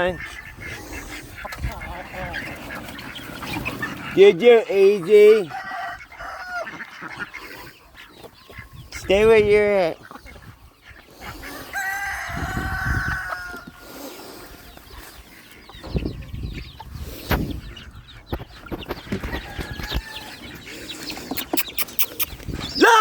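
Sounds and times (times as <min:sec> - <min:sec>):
chickens clucking: 0:00.0 - 0:23.0
rooster crowing: 0:05.5 - 0:06.7, 0:11.7 - 0:13.7.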